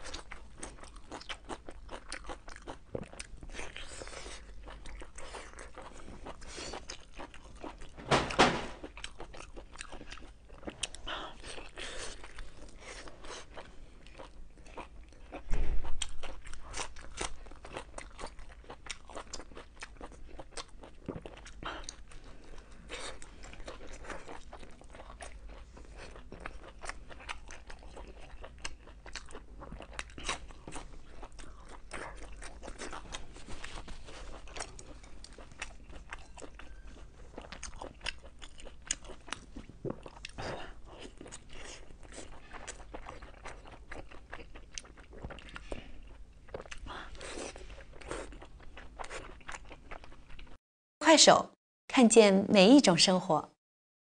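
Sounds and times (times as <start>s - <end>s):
person chewing meat: 0.0s - 8.0s, 8.8s - 50.6s
sudden loud knock: 8.0s - 8.8s.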